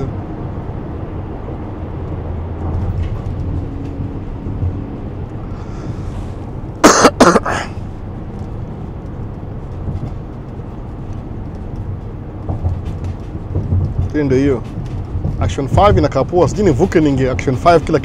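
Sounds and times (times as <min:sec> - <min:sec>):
road noise: 0:00.0 - 0:18.0
van engine rumble: 0:00.0 - 0:18.0
man coughing: 0:06.8 - 0:07.8.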